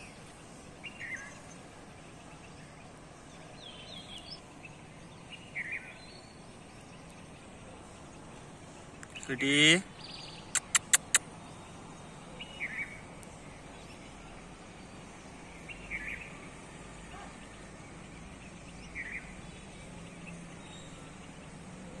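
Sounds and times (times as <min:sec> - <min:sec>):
outdoor background noise: 0:00.0 - 0:22.0
small bird chirping: 0:08.9 - 0:16.4
sharp clicks: 0:10.6 - 0:11.2.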